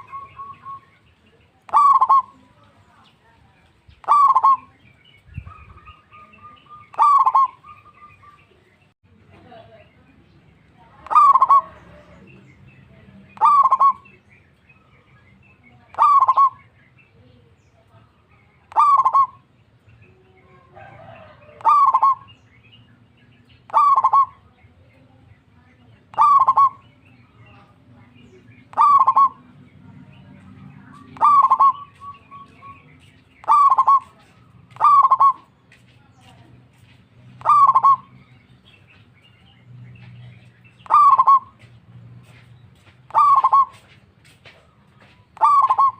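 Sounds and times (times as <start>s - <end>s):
dove cooing: 1.7s - 2.6s, 4.0s - 4.9s, 5.5s - 8.4s, 11.0s - 12.1s, 13.3s - 14.2s, 15.9s - 16.7s, 18.7s - 19.4s, 20.2s - 22.4s, 23.7s - 24.5s, 26.1s - 27.6s, 28.2s - 29.6s, 30.9s - 32.8s, 33.4s - 35.5s, 37.4s - 38.1s, 40.8s - 41.7s, 43.1s - 43.9s, 45.4s - 45.9s.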